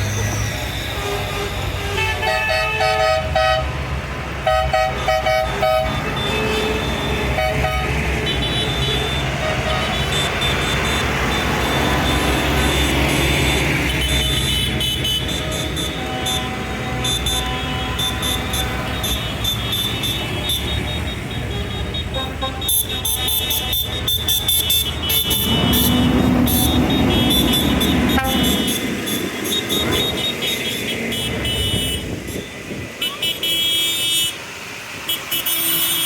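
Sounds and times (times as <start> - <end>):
tractor engines running: 0.0 - 36.0
vehicle horns tooting: 0.2 - 36.0.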